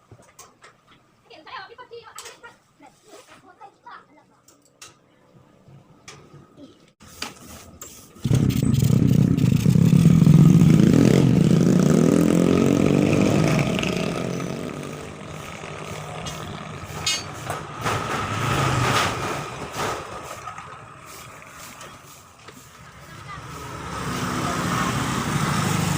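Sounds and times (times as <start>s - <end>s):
engine starting and running: 8.2s - 25.9s
engine knocks: 15.2s - 22.0s.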